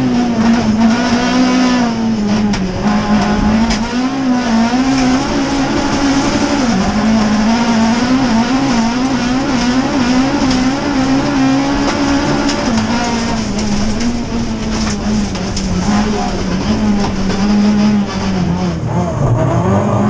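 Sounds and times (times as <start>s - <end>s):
racing car engine revving: 0.0s - 20.0s.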